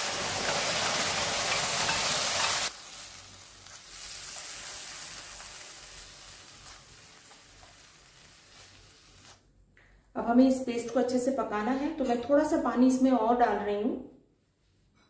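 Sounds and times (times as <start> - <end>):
paste frying in hot oil: 0.0 - 9.4.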